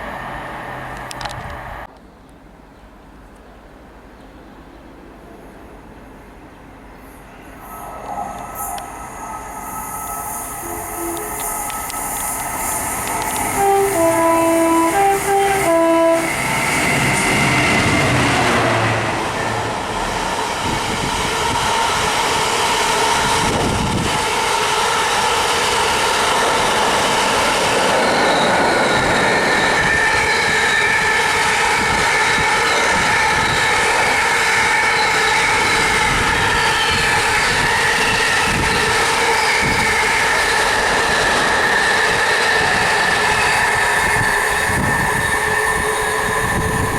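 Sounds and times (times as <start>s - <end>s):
train rumbling past: 0.0s - 1.9s, 3.8s - 46.9s
train horn blasts: 10.6s - 12.0s, 13.1s - 16.6s.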